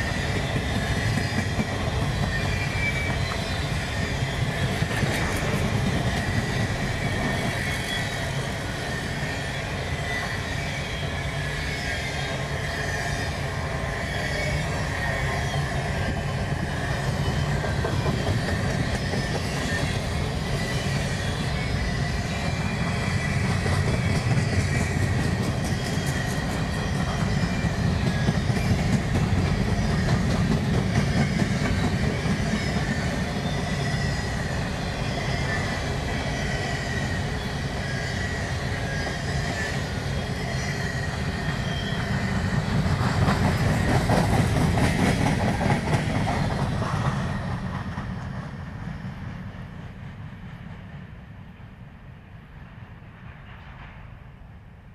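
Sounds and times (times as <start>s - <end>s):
wheels clacking over rail joints: 0.0s - 8.0s, 41.1s - 48.6s
wheel squeal: 0.0s - 47.7s
freight train rumbling: 0.0s - 54.9s.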